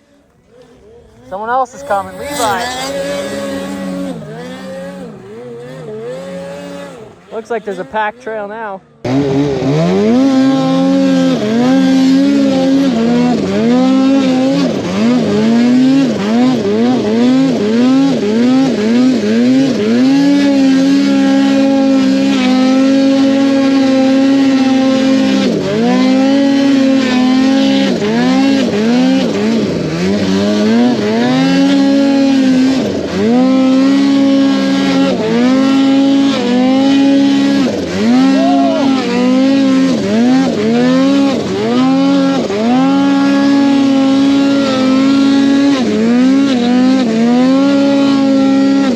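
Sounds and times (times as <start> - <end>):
snowmobile engine revving: 0.0 - 48.9.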